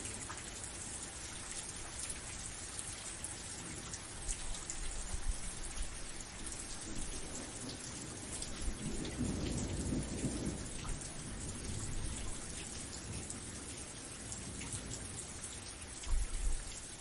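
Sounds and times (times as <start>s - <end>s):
steady rain falling: 0.0s - 17.0s
low roll of thunder: 6.7s - 15.1s.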